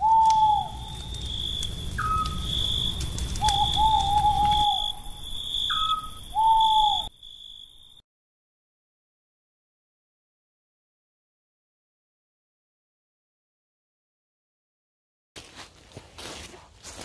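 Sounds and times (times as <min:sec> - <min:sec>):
owl hooting: 0:00.0 - 0:01.3, 0:01.9 - 0:07.2
crickets chirping: 0:00.0 - 0:08.0.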